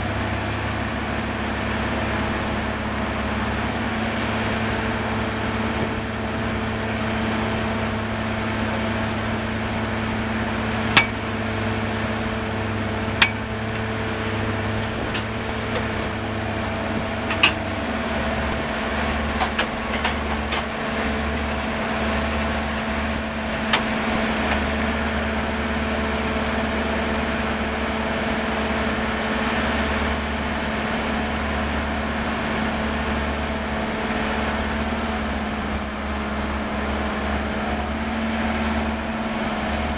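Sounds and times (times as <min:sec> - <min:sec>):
drilling rig engine drone: 0:00.0 - 0:39.9
sharp knocks: 0:11.0 - 0:11.2.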